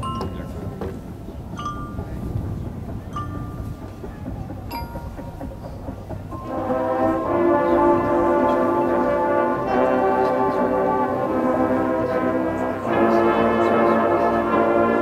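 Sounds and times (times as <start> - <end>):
marching band brass chords: 4.7 - 15.0.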